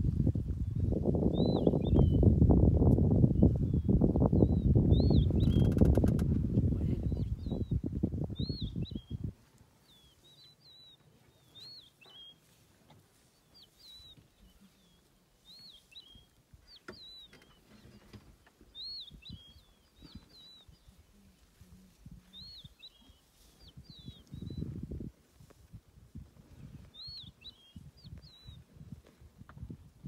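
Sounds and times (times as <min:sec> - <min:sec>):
bird chirping: 0:03.4 - 0:06.2, 0:09.8 - 0:12.5, 0:13.4 - 0:21.1, 0:26.9 - 0:28.6.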